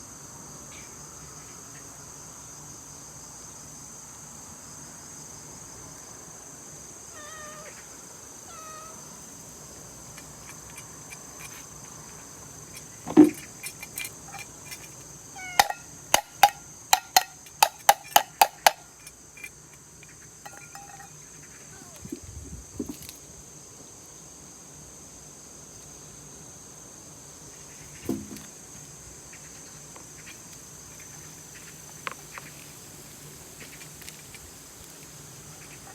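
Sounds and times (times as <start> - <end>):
crickets chirring: 0.0 - 35.9
cat meowing faintly: 7.1 - 9.2, 15.3 - 15.8, 21.7 - 22.1.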